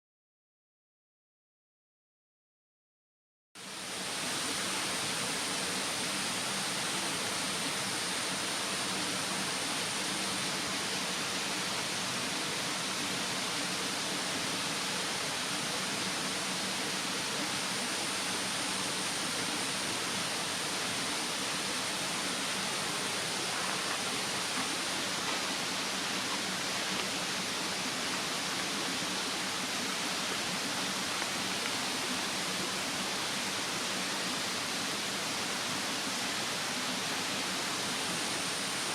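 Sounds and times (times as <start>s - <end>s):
mountain stream rushing: 3.6s - 38.9s
high insect drone: 13.6s - 35.2s.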